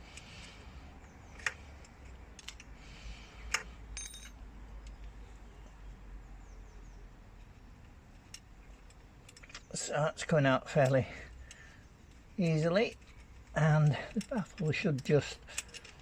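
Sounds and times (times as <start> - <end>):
allen key clicking and scraping: 0.0 - 5.8, 7.2 - 16.0
metal clink: 4.0 - 4.4.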